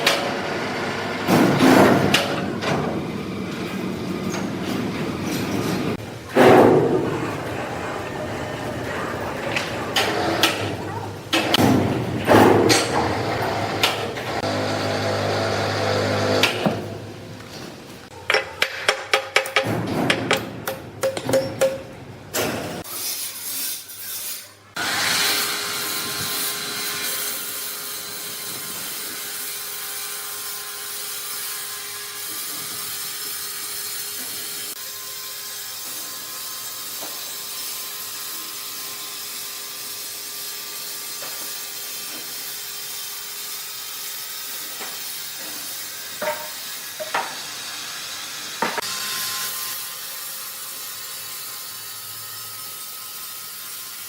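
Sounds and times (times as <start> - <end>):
sawmill machinery hissing: 12.6 - 16.6.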